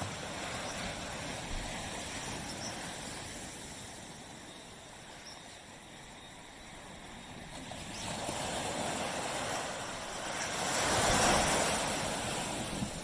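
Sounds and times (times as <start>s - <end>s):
waves washing onto beach: 0.0s - 13.0s.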